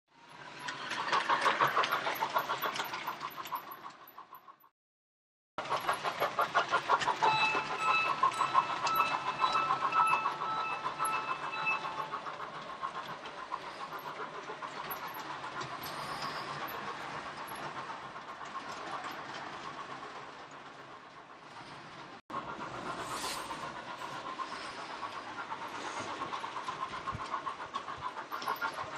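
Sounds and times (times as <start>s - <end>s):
model train clattering on track: 0.2s - 4.6s, 5.6s - 28.9s
steady whistle-like tone: 6.9s - 17.9s.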